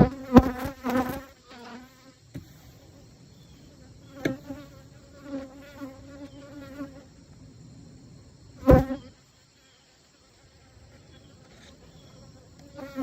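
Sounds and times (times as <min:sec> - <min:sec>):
loud short bee buzzes: 0:00.0 - 0:02.0, 0:08.6 - 0:09.1
honeybees buzzing: 0:00.0 - 0:07.8, 0:08.6 - 0:09.2, 0:10.4 - 0:13.0.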